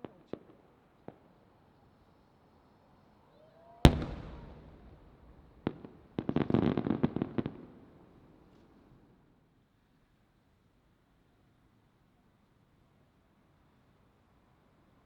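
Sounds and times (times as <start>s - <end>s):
firework whistle: 3.9s - 5.7s
firework shell bursting: 3.9s - 5.8s
firework report: 3.9s - 7.5s
crackling firework pops: 3.9s - 7.6s.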